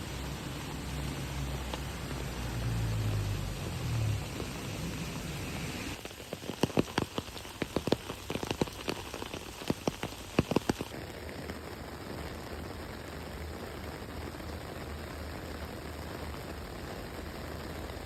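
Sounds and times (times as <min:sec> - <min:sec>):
big raindrops pattering close by: 0:00.0 - 0:18.0
heavy rain hissing: 0:00.0 - 0:18.0.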